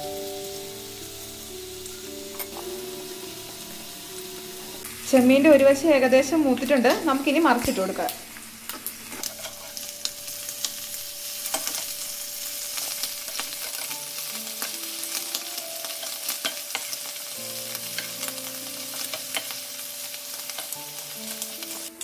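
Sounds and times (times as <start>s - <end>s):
prawns sizzling in hot oil: 0.0s - 22.0s
spatula clicking and scraping: 8.8s - 9.9s, 11.5s - 12.0s.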